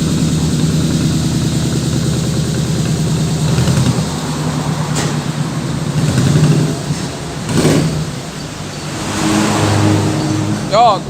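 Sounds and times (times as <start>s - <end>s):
short rush of noise: 8.8s - 10.9s.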